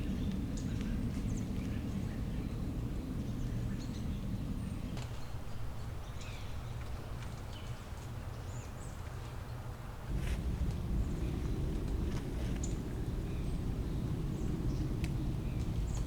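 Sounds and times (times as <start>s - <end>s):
low rumble: 10.0s - 16.0s.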